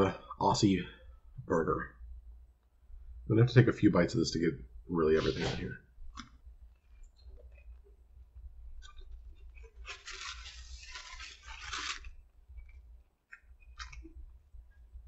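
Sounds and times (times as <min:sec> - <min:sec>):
person chewing: 0:08.8 - 0:14.2.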